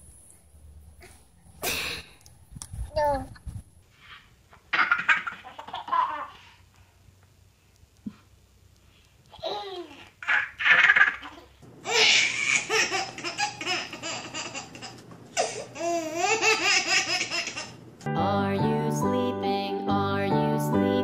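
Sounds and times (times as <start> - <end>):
baby laughing: 4.7 - 6.6, 9.3 - 17.8.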